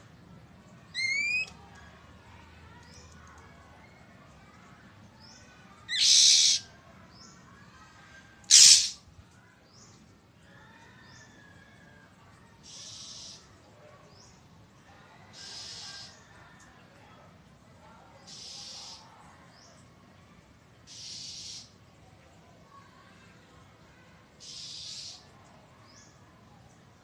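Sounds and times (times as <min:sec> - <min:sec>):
bird harsh rasping calls: 0:00.9 - 0:01.5, 0:05.9 - 0:06.7, 0:08.5 - 0:09.0, 0:12.6 - 0:13.4, 0:15.4 - 0:16.1, 0:18.3 - 0:19.0, 0:20.9 - 0:21.7, 0:24.4 - 0:25.2
faint short bird chirps: 0:08.5 - 0:09.0.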